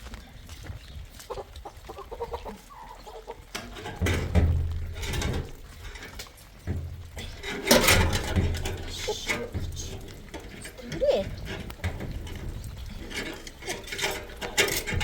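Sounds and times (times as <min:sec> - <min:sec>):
chickens clucking: 0:00.7 - 0:15.0
rustling and knocking: 0:03.5 - 0:15.0.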